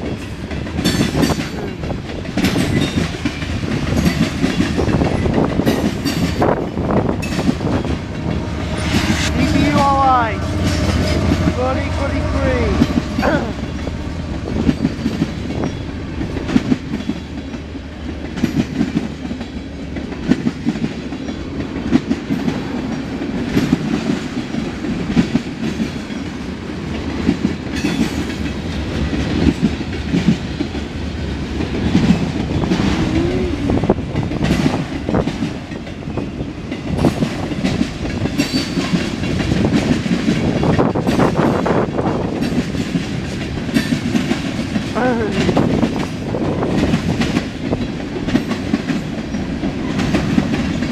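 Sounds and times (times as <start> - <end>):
wheels clacking over rail joints: 0.0 - 11.8, 12.8 - 50.9
freight train rolling past: 0.0 - 50.9.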